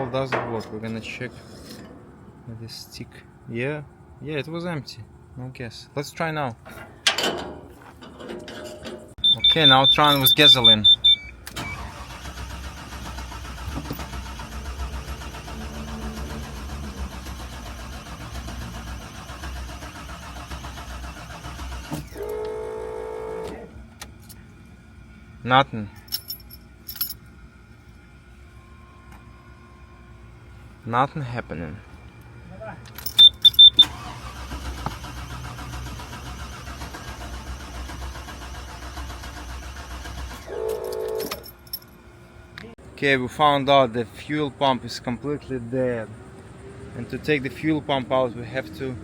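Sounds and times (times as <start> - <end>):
starter cranking engine: 9.2 - 22.3, 33.0 - 40.6.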